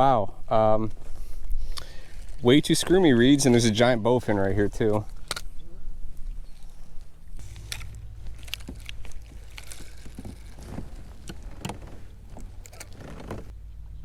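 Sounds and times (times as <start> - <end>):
clicks and knocks on kayak: 8.6 - 13.5.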